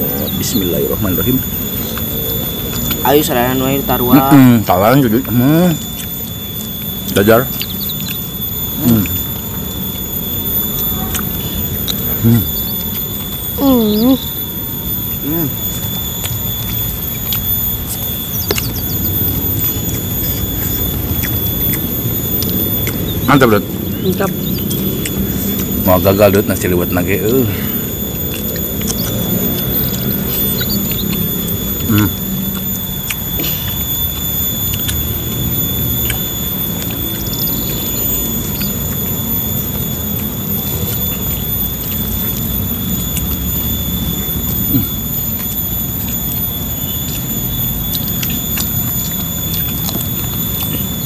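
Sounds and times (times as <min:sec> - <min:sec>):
thin high tones: 0:00.0 - 0:51.0
wet chewing and lip smacks: 0:00.0 - 0:51.0
sharp mouth clicks: 0:05.7 - 0:10.0, 0:15.2 - 0:19.1, 0:19.8 - 0:37.8.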